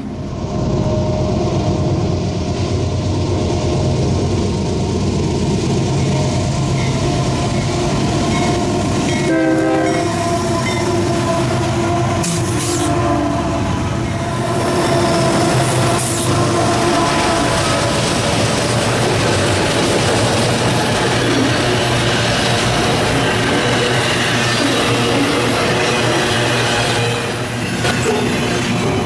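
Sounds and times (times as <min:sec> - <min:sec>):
freight train engine rumble: 0:00.0 - 0:29.0
train horn: 0:08.6 - 0:18.2, 0:21.9 - 0:29.0.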